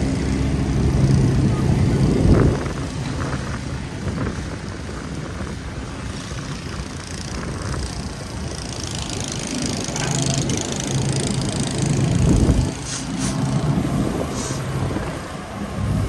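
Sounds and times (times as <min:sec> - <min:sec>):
vehicle engines running: 0:00.0 - 0:16.0
tyre hiss: 0:12.8 - 0:13.5, 0:14.3 - 0:14.8.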